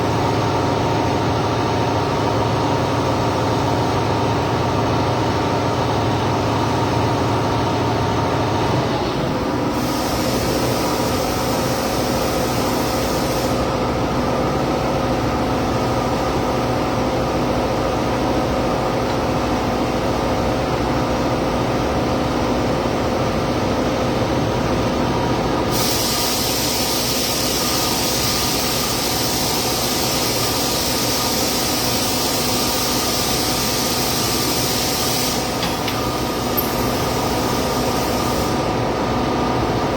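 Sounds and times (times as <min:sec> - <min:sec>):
workshop machine hum: 0:00.0 - 0:39.9
machine hiss: 0:09.6 - 0:14.0, 0:25.7 - 0:39.0.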